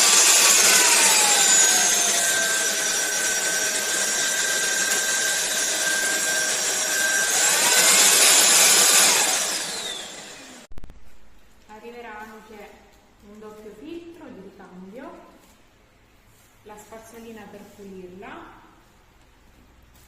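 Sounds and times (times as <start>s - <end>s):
stick vacuum motor whining: 0.0s - 10.7s.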